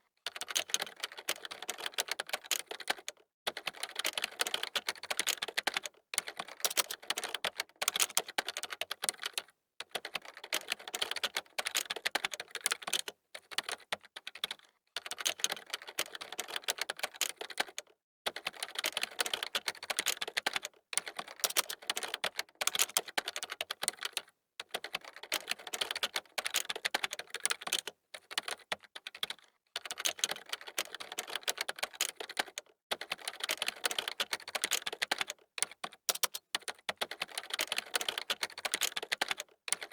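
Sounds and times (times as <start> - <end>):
keyboard typing clicks: 30.0 - 39.9.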